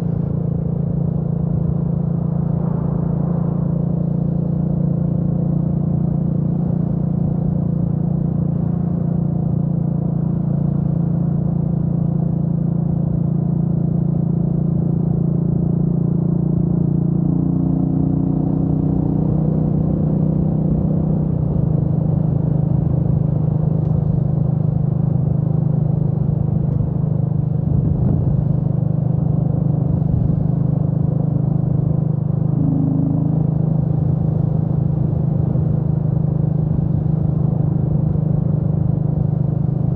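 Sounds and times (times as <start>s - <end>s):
motorcycle engine cruising: 17.1s - 39.9s.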